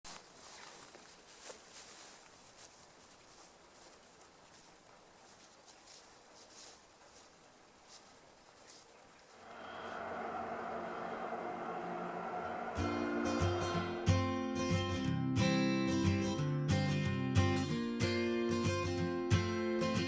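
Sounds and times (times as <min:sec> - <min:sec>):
cricket chirping: 0:00.1 - 0:14.8
guitar music: 0:11.6 - 0:20.0.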